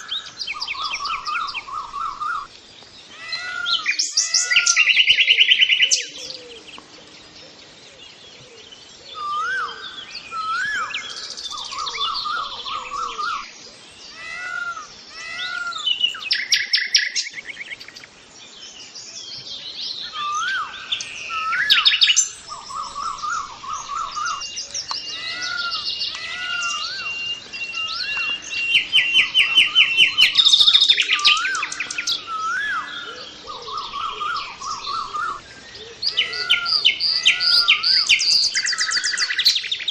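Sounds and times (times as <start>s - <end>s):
birds chirping: 0.0s - 39.9s
loud bird trills: 20.1s - 39.8s.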